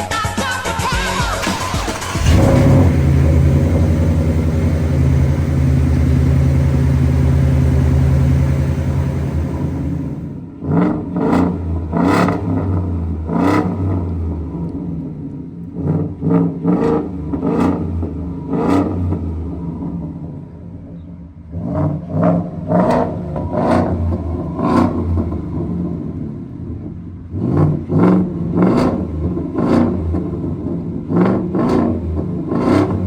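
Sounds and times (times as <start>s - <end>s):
engine idling: 1.4s - 10.5s
engine throttle blips: 1.4s - 10.6s, 31.3s - 33.0s.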